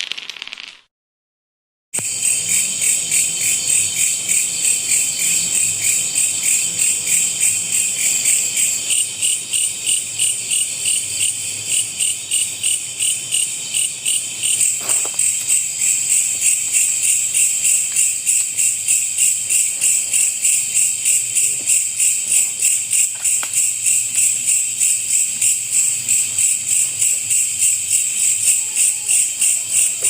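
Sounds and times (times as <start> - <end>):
night insects trilling: 2.0 - 30.0.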